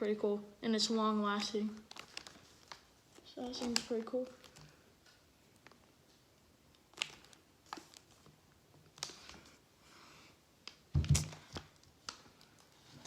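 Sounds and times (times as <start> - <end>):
packages clicking and knocking: 10.9 - 12.2.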